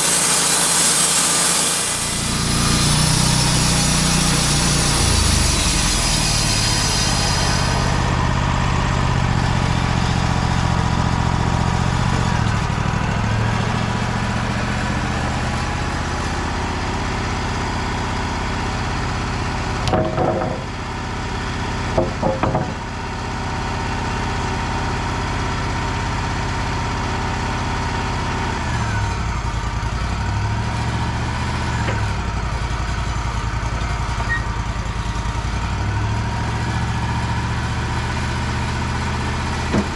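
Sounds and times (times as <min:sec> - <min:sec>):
high hiss: 0:00.0 - 0:04.2
sawmill engine running: 0:00.0 - 0:08.4.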